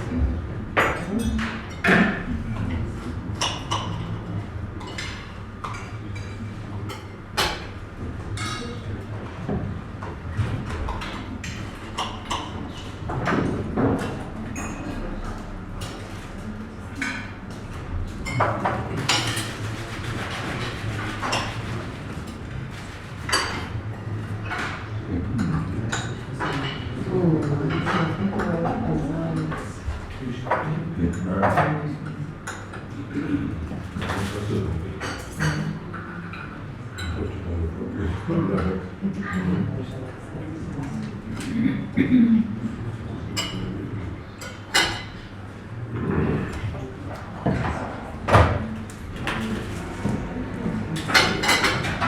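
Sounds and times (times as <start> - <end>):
murmur of conversation: 0.0 - 52.0
cutlery and plates clinking: 15.8 - 26.9, 43.3 - 45.4, 49.2 - 52.0.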